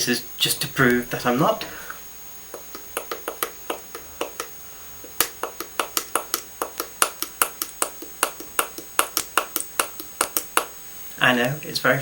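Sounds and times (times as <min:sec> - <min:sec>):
person clicking with body: 0:02.5 - 0:10.8.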